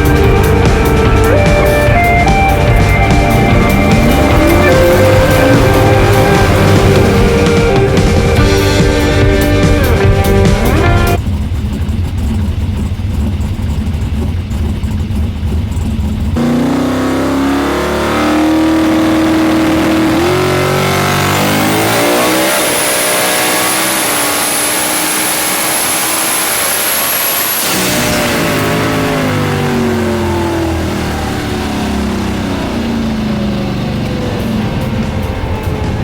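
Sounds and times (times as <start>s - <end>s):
music: 0.0s - 11.2s, 34.2s - 36.0s
high-pitched whine: 0.0s - 12.3s, 16.4s - 36.0s
engine accelerating through gears: 0.0s - 36.0s
race car engine rumbling: 0.0s - 36.0s.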